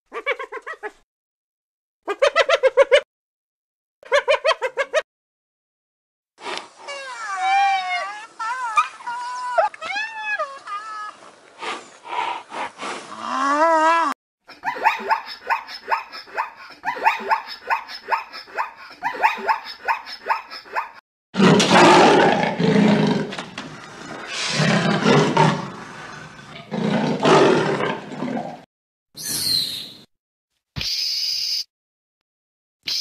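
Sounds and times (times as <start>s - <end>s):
leopard growling and roaring: 21.4s - 28.7s.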